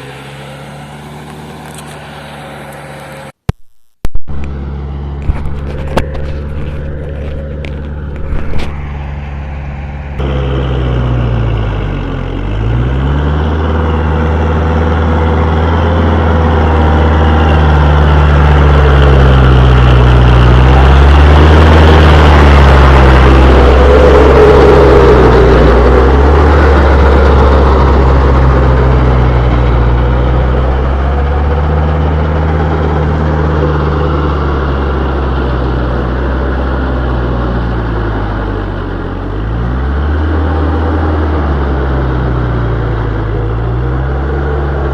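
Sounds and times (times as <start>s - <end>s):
tractor diesel engine under load: 0.0s - 3.5s, 4.2s - 44.9s.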